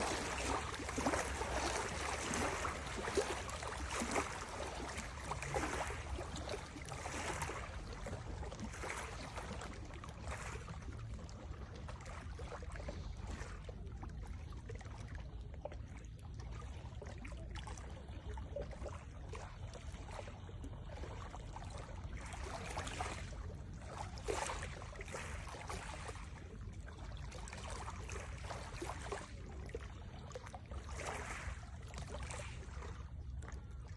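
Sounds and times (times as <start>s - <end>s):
small waves lapping: 0.0s - 33.9s
steady low rumble: 26.0s - 33.9s.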